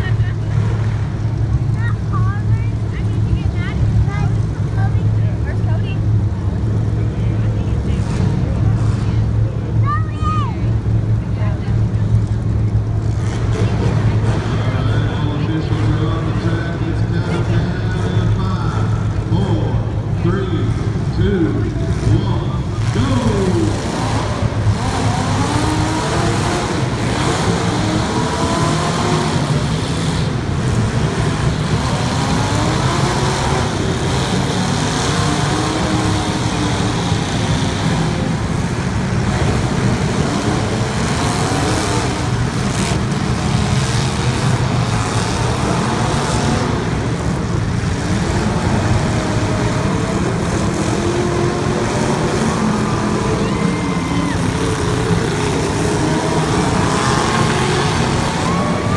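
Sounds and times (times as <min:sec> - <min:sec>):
car engines revving: 0:00.0 - 0:58.9
steady engine rumble: 0:00.0 - 0:58.9.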